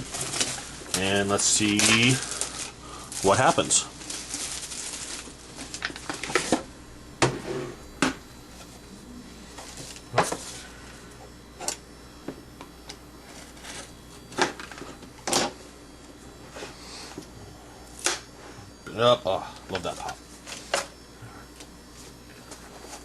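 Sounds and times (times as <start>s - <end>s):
packaging rustling: 0.0s - 6.7s.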